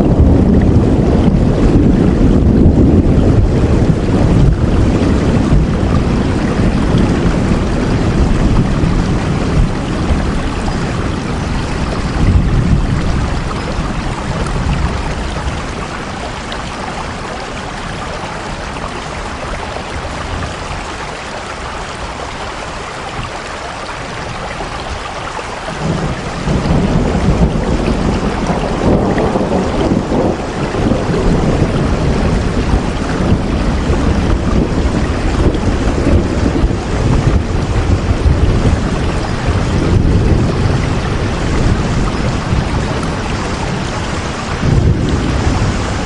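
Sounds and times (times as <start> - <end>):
deep low rumble: 0.0 - 15.8
steady rain: 0.0 - 46.0.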